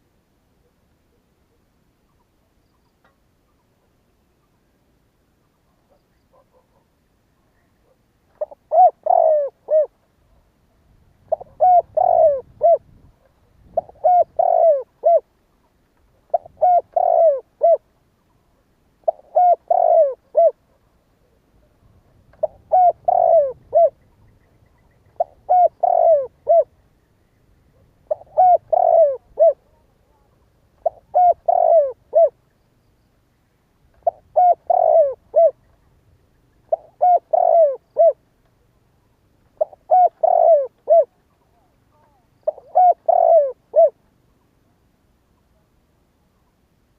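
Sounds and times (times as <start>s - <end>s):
dove cooing: 7.7s - 10.0s, 11.2s - 15.3s, 16.1s - 17.9s, 19.0s - 24.1s, 24.7s - 26.8s, 27.7s - 32.5s, 34.0s - 35.8s, 36.6s - 38.7s, 39.5s - 44.0s.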